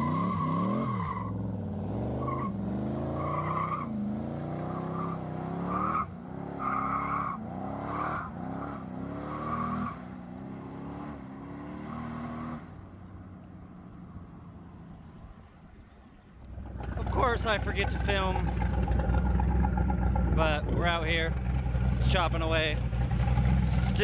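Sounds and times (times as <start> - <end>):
tires squealing: 0.0 - 10.5
pickup engine revving: 0.0 - 12.8, 15.8 - 24.0.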